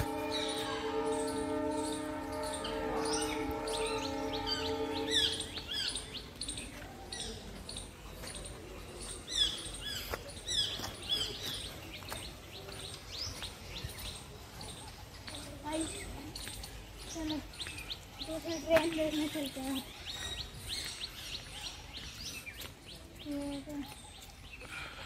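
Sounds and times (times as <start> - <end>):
held chord: 0.0 - 6.0
birds chirping: 0.0 - 25.0.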